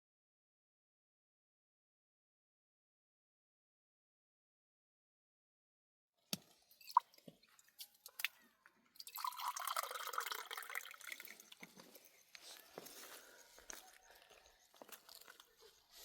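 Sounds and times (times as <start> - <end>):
water pouring and splashing: 6.3 - 12.1.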